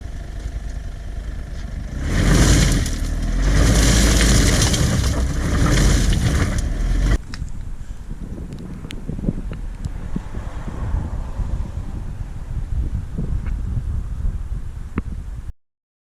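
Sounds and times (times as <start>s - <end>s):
car engine revving: 0.5s - 7.2s.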